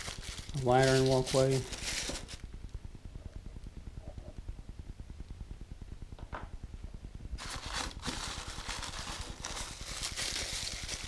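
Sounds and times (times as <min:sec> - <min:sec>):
plastic packaging crinkling: 0:00.0 - 0:02.4, 0:07.4 - 0:11.0
rapid low pulsing: 0:01.6 - 0:11.0.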